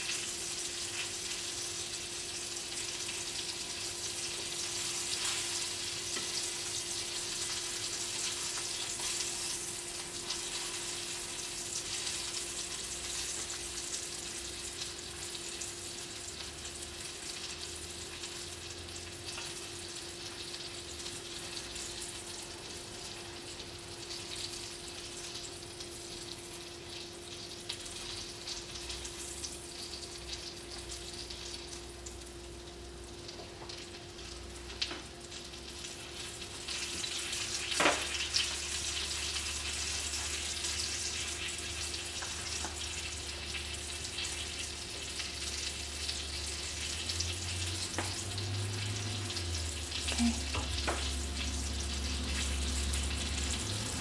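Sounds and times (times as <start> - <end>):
fish sizzling in hot oil: 0.0 - 54.0
steady hum: 37.9 - 54.0.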